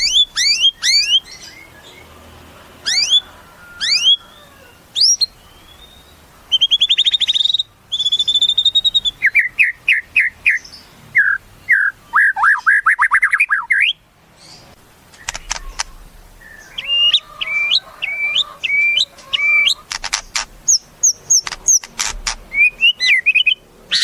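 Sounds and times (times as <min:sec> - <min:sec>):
songbird singing varied song: 0:00.0 - 0:02.2, 0:02.8 - 0:24.0.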